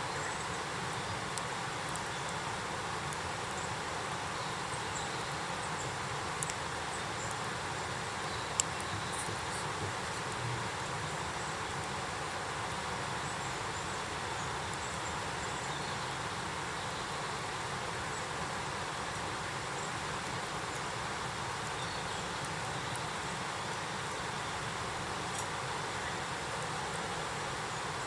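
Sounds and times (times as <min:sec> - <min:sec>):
faint ticks: 0:06.4 - 0:07.5, 0:25.3 - 0:25.6.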